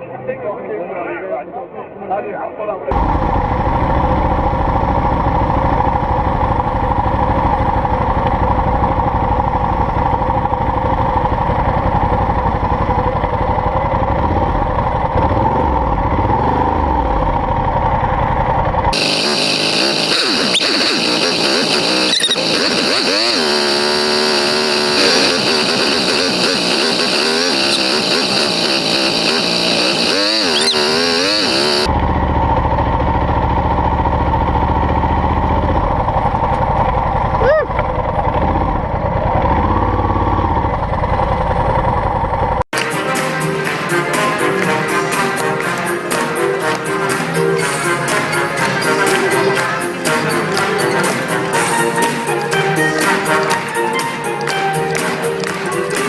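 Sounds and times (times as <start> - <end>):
motorcycle engine revving: 2.9 - 42.7
motorcycle engine running: 2.9 - 42.7.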